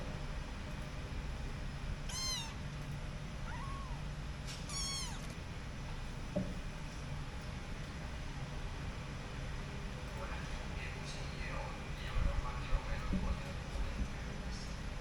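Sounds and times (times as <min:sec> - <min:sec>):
kitten mewing: 0:02.1 - 0:02.6, 0:03.4 - 0:05.4.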